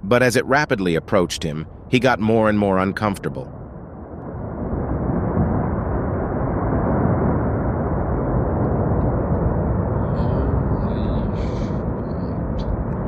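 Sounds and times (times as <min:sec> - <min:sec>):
avalanche rumbling: 0:02.7 - 0:13.0.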